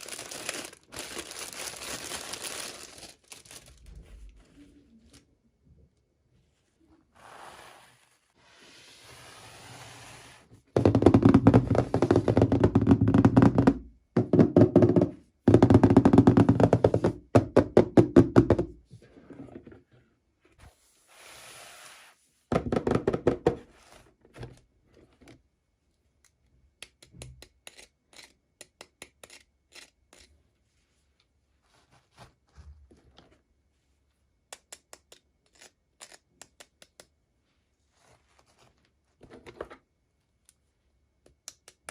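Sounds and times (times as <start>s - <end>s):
toy packaging knocking and rattling: 0.0s - 3.7s, 10.8s - 18.8s
packaging rustling: 0.0s - 4.2s.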